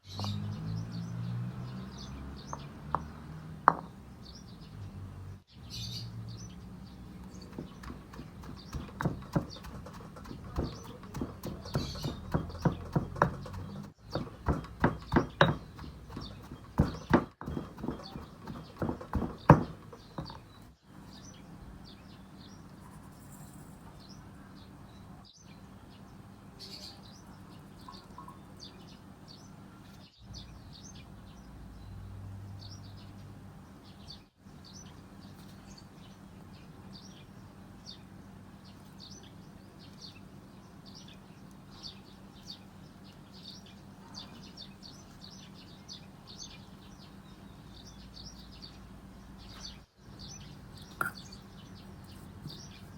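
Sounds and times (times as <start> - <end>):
small birds chirping: 0.0 - 52.9
sharp knocks: 7.5 - 20.5.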